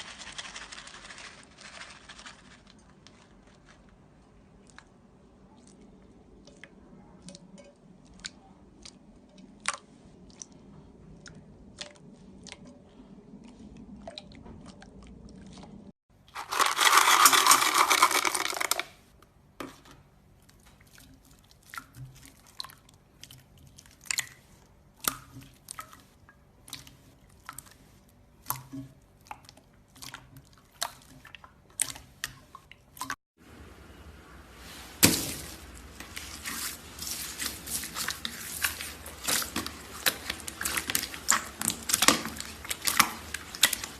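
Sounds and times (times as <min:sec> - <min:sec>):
slime crunching: 0:35.0 - 0:43.9.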